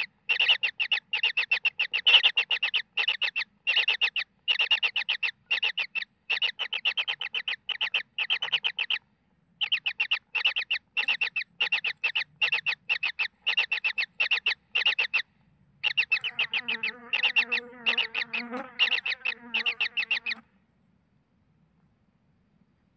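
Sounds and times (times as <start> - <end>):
chicks buzzy rasping calls: 0.0 - 9.0, 9.6 - 20.5
lower-pitched call: 15.8 - 20.4.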